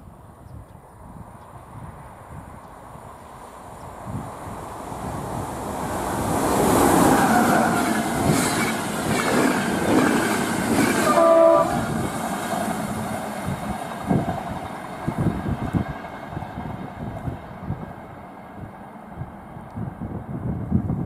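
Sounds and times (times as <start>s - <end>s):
train wheels rushing on rail: 3.3s - 21.0s
multi-tone train horn: 10.8s - 12.0s.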